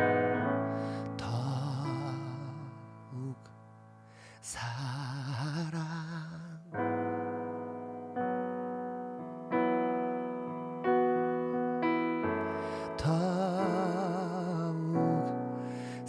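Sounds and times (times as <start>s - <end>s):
electric piano chords: 0.0s - 4.3s, 5.6s - 16.0s
person singing with vibrato: 0.7s - 3.6s, 4.2s - 7.1s, 12.6s - 16.0s.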